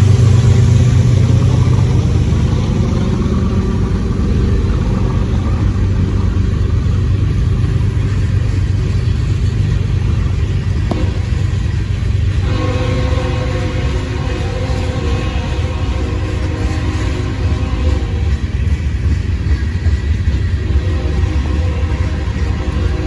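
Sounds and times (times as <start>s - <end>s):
diesel locomotive rumbling: 0.0s - 23.0s
locomotive horn: 10.9s - 18.7s, 20.6s - 23.0s.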